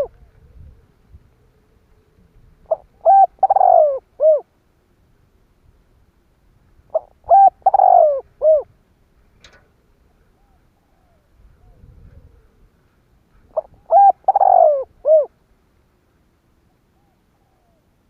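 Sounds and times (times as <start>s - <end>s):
dove cooing: 0.0s - 4.5s, 6.9s - 8.7s, 9.9s - 15.4s, 16.7s - 18.0s.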